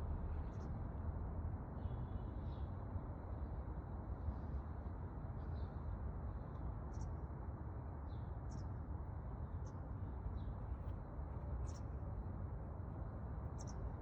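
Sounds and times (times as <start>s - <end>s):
steady low rumble: 0.0s - 1.8s.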